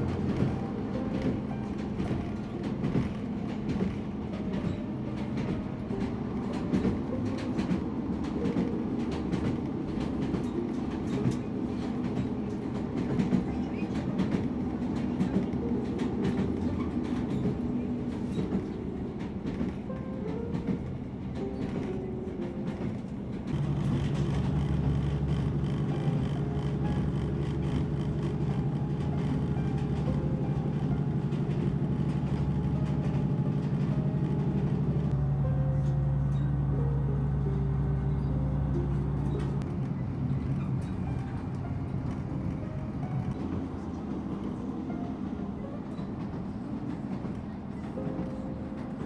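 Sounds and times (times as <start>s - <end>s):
clicks and knocks of train: 0.0s - 35.2s, 35.8s - 49.0s
train rumbling inside carriage: 0.0s - 49.0s.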